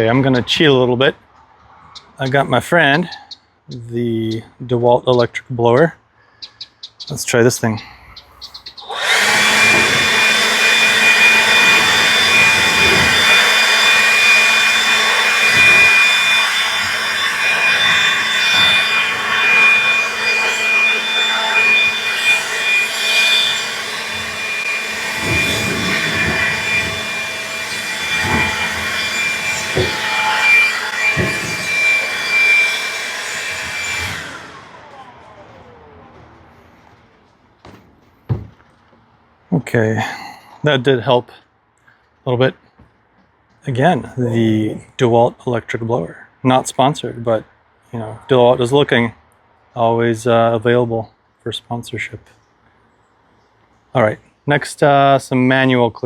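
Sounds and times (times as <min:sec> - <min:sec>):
electric blower whining: 0:08.8 - 0:38.6.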